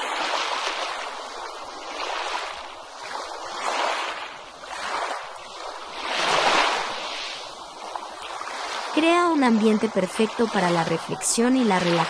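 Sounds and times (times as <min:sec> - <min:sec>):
waves breaking on a beach: 0:00.0 - 0:12.0.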